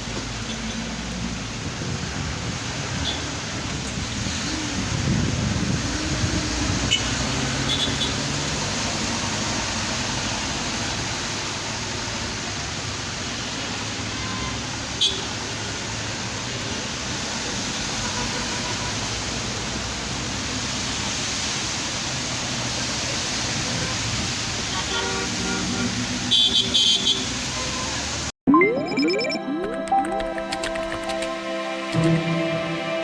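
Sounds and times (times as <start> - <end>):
vehicle engine: 0.0 - 11.2
heavy rain hissing: 0.3 - 28.3.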